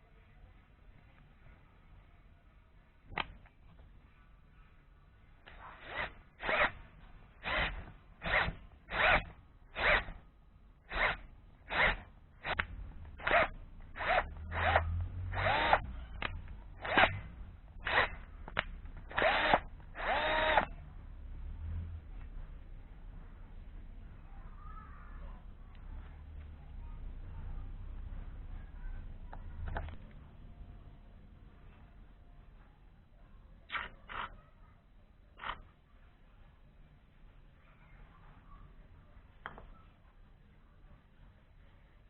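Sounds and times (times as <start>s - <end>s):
power drill bursts: 5.5s - 6.8s, 7.4s - 10.2s, 10.9s - 15.9s, 16.8s - 20.7s.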